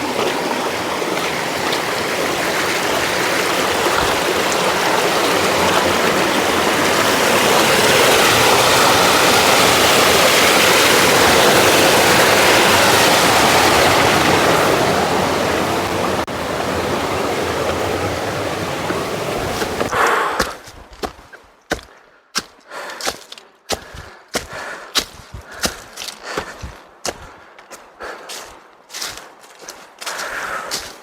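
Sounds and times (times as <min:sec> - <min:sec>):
fast-flowing water rushing: 0:00.0 - 0:19.9.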